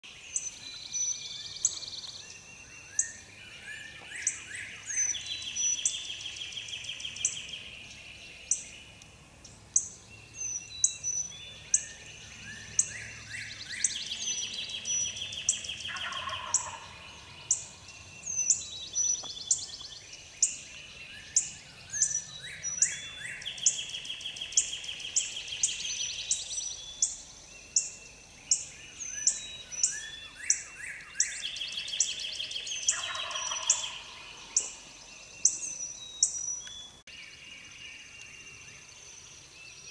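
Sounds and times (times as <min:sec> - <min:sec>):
songbirds chirping: 0:00.0 - 0:39.9
bird trills: 0:09.7 - 0:19.8, 0:21.2 - 0:37.0.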